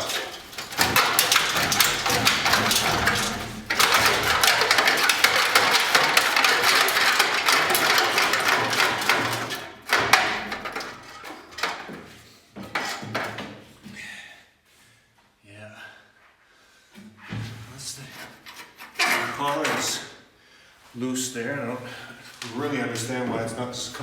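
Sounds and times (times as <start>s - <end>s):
metal muffler rattling and scraping: 0.0s - 13.4s, 18.0s - 20.1s
metal clunks: 0.0s - 13.6s.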